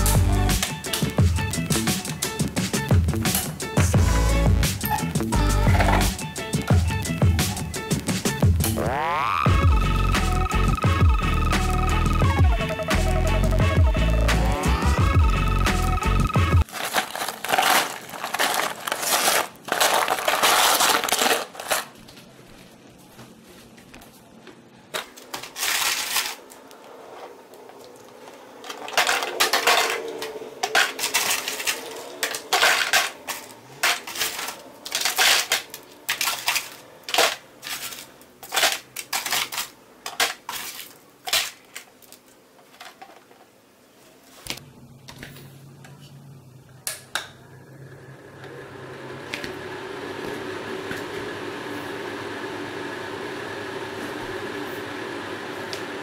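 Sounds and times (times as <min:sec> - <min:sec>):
hard objects clattering: 0:16.6 - 0:22.0, 0:27.2 - 0:43.5
small electric fan whirring: 0:24.7 - 0:56.0.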